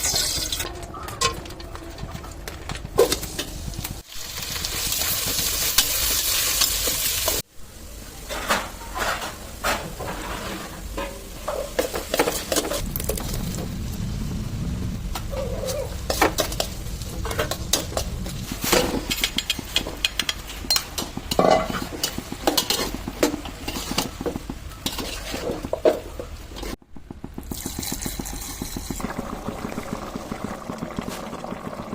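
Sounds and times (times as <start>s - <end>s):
frying sizzle: 0.0s - 0.7s, 3.0s - 31.9s
steady cooking noise: 0.0s - 1.6s, 2.5s - 31.9s
spoon scraping a pan: 16.1s - 26.8s.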